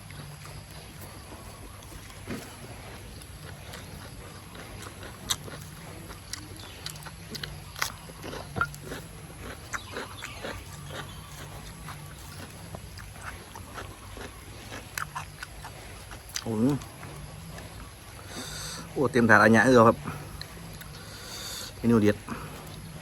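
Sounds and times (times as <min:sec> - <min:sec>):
low background hum: 0:00.0 - 0:23.0
person chewing noisily: 0:00.0 - 0:23.0.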